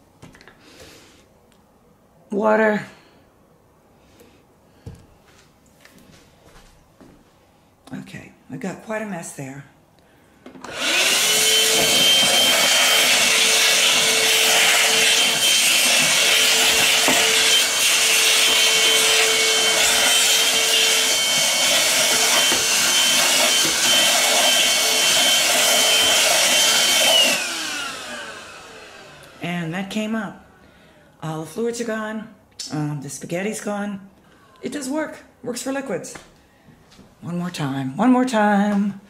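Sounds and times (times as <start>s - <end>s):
handheld vacuum whining: 10.4s - 29.5s.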